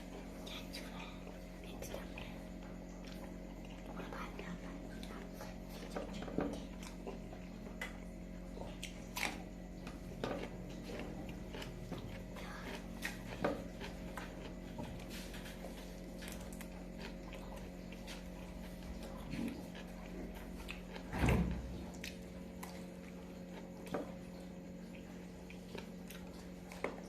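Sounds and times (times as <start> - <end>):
low electrical hum: 0.0 - 27.0
person chewing and biting: 6.6 - 21.1, 21.7 - 27.0.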